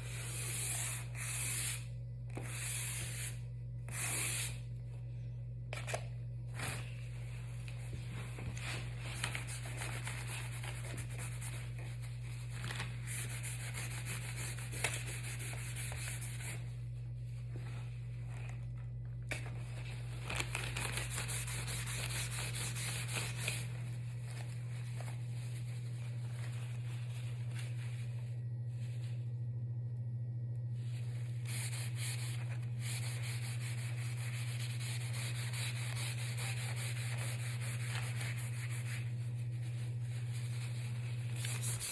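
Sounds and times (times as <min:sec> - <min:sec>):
colouring strokes on paper: 0:00.0 - 0:04.6
steady low hum: 0:00.0 - 0:41.9.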